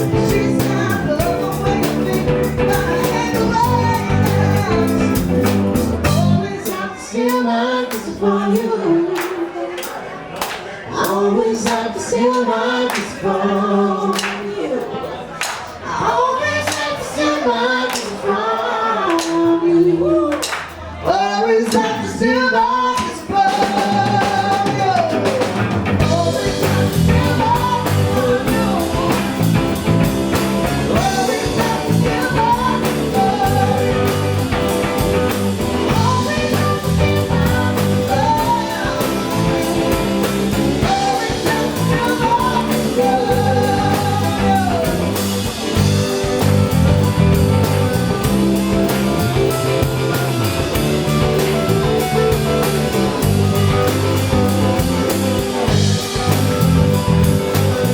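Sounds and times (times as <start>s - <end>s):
person singing: 0.0s - 10.0s, 10.9s - 15.0s, 15.8s - 57.9s
drums: 0.0s - 57.9s
guitar: 0.0s - 57.9s.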